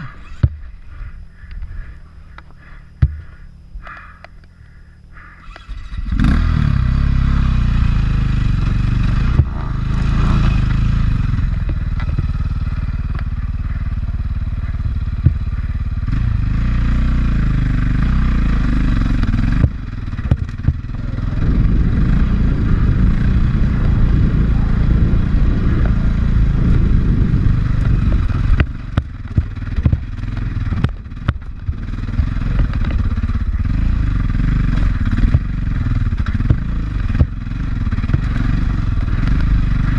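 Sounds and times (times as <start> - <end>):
knocks and clatter from bike: 0.0 - 0.8, 8.6 - 18.3, 19.1 - 21.1, 27.6 - 39.9
dirt bike engine: 0.0 - 39.9.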